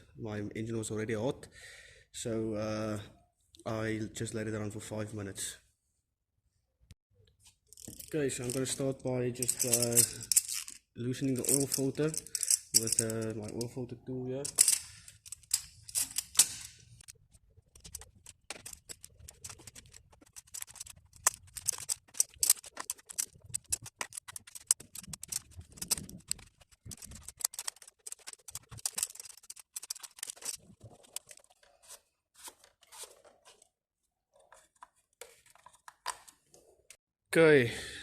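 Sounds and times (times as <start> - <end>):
oil filter wrench clicking and scraping: 9.5 - 10.8, 11.4 - 13.7, 14.5 - 17.1, 17.8 - 31.5.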